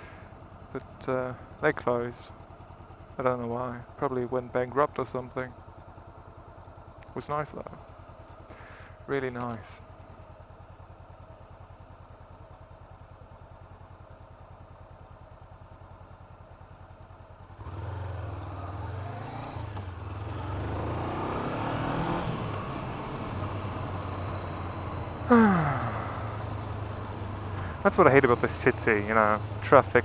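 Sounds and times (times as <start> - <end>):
motorcycle engine idling and accelerating: 0.0 - 30.0.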